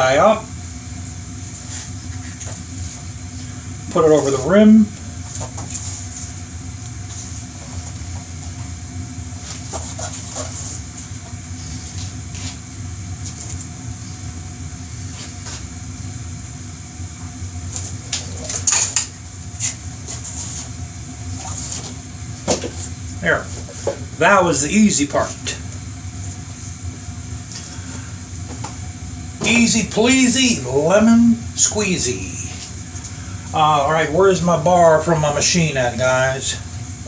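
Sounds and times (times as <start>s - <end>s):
steady low hum: 0.0s - 37.0s
rubber tire rubbing on wheel rim: 9.4s - 12.6s, 19.6s - 22.0s.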